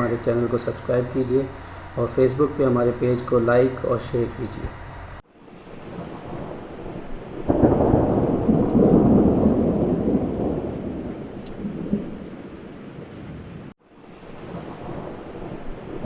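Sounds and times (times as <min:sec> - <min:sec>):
heavy rain falling: 0:00.0 - 0:05.2, 0:07.4 - 0:13.7
thunder rolling: 0:05.9 - 0:13.7.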